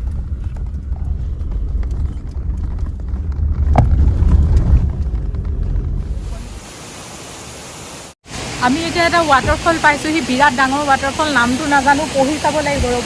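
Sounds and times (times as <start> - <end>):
car driving low rumble: 0.0 - 6.7
waterfall rushing: 6.1 - 13.0.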